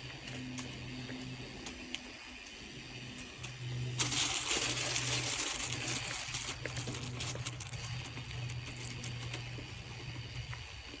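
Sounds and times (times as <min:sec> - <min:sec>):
bike tyres hissing on gravel: 0:02.6 - 0:11.0
grit and stones clicking: 0:05.0 - 0:09.5.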